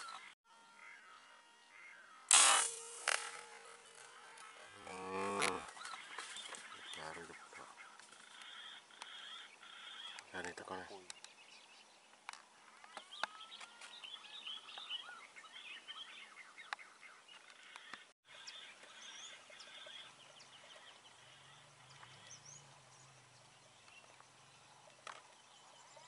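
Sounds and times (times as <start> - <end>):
birds chirping and whistling: 12.8 - 24.7.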